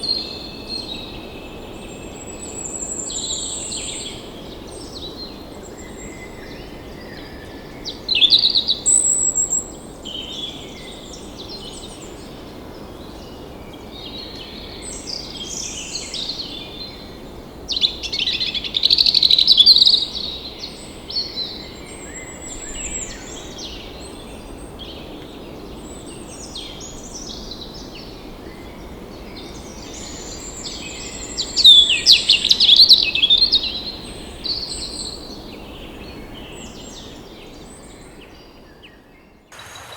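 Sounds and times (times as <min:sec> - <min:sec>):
outdoor ambience hiss: 0:39.5 - 0:39.9.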